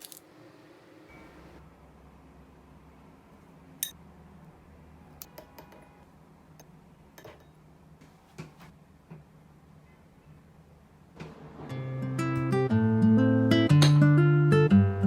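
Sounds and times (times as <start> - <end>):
kitchenware clicks and taps: 6.6 - 7.6.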